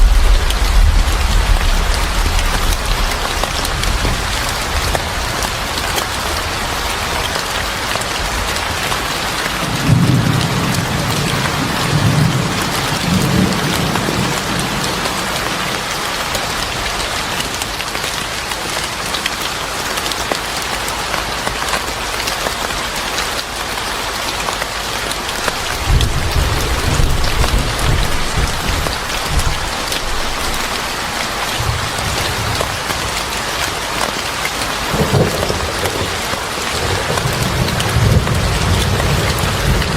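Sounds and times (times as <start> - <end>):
rolls of thunder: 0.0 - 5.4, 25.6 - 32.8
heavy rainfall: 0.0 - 39.9.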